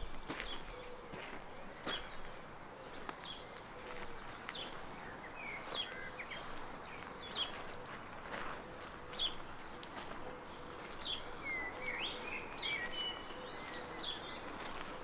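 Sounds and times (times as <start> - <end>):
soft footsteps: 0.0 - 5.0, 7.3 - 11.9
faint outdoor background noise: 0.0 - 15.0
small birds chirping: 0.0 - 15.0.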